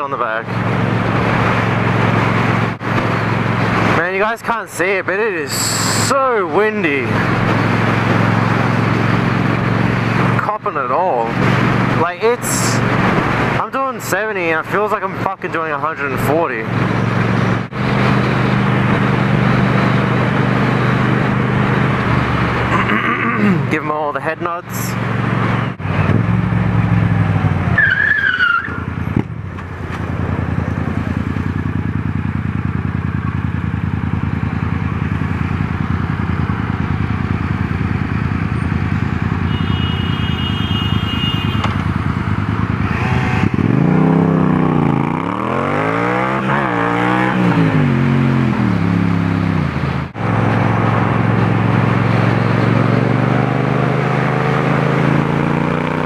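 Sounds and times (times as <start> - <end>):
motorcycle engine accelerating: 16.4 - 23.8, 28.7 - 39.7, 41.4 - 56.0.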